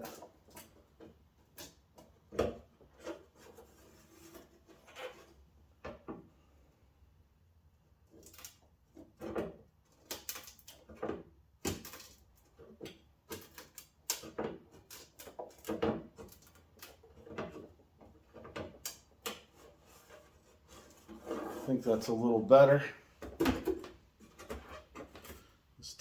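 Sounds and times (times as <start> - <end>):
plastic creaking and knocking: 12.5 - 21.7.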